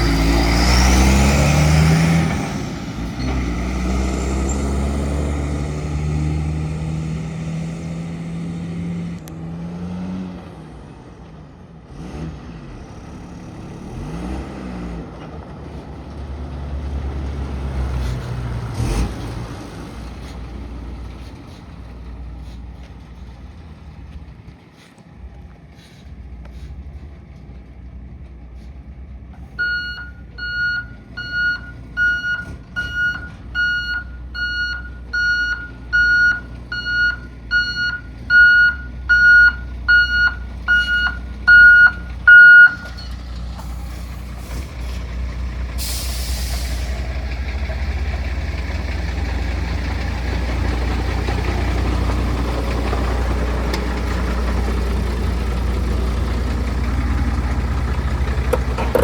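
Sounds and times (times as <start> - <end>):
diesel engine running: 0.0 - 9.3, 12.7 - 59.0
truck reverse alarm beeping: 29.6 - 43.2
short air hiss: 45.8 - 47.0.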